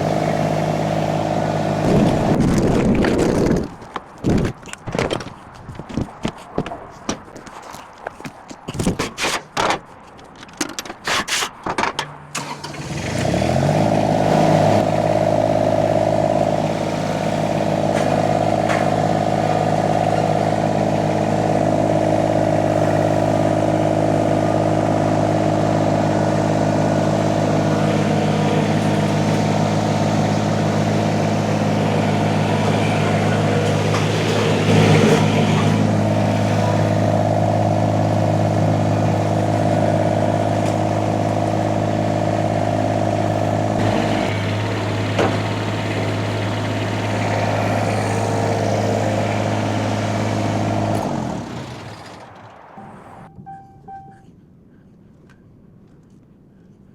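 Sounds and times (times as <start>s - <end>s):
skid steer engine running: 0.0s - 3.8s, 12.3s - 53.6s
constant whine: 13.9s - 56.4s.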